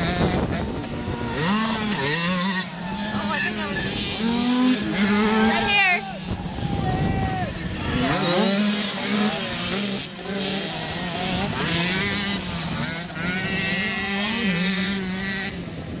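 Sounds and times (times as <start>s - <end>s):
motocross bikes revving: 0.0s - 16.0s.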